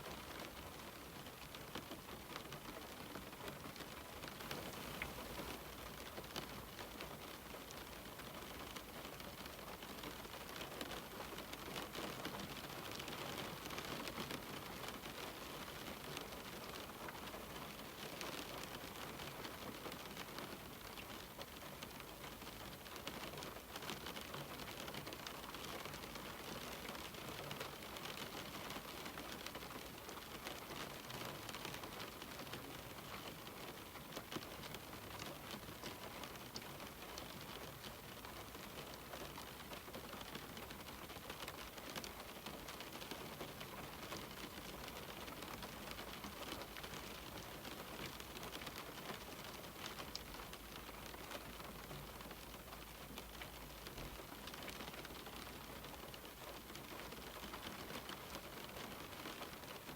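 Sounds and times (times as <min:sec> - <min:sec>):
rain on a window: 0:00.0 - 0:59.9
raindrops ticking on glass: 0:00.1 - 0:59.9.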